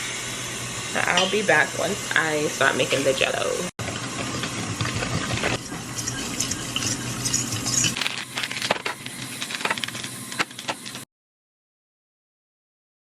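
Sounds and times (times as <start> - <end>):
liquid pouring and sloshing: 3.8 - 10.0.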